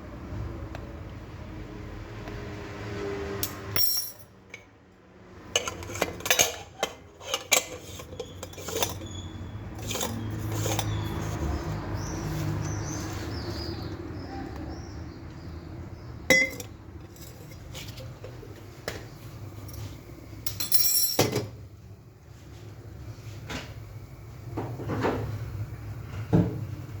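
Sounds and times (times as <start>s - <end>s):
dishes and utensils clinking: 5.5s - 11.6s, 16.3s - 18.4s, 19.7s - 21.6s.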